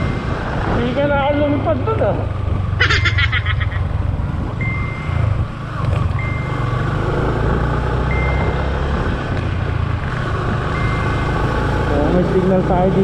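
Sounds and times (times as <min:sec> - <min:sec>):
motorcycle engine rumble: 0:00.0 - 0:13.0
wind: 0:00.0 - 0:13.0
short high beep: 0:04.6 - 0:05.3, 0:08.1 - 0:08.7.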